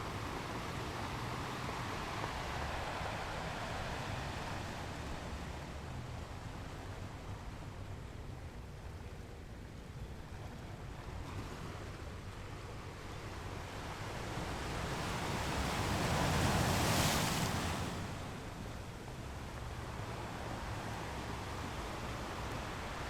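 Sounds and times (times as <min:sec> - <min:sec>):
ocean waves washing: 0:00.0 - 0:06.8, 0:13.4 - 0:23.0.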